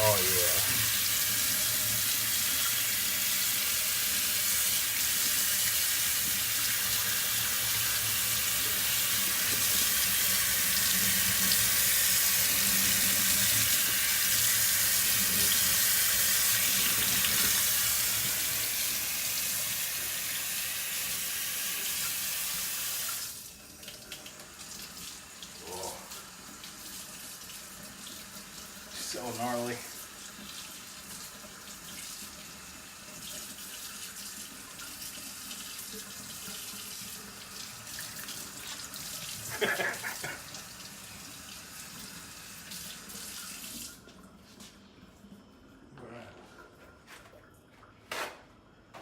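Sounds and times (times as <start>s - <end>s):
tap water splashing into sink: 5.0s - 18.6s.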